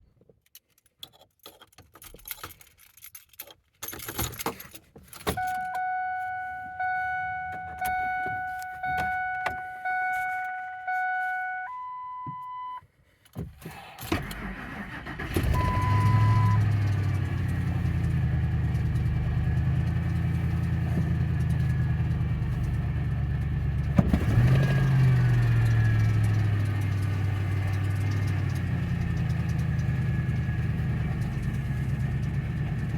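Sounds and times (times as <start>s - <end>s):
keys jangling: 0.5s - 5.6s
truck warning chime: 5.3s - 12.8s, 14.6s - 17.4s
short steady tone: 5.4s - 12.8s
truck engine cranking and idling: 13.6s - 32.9s.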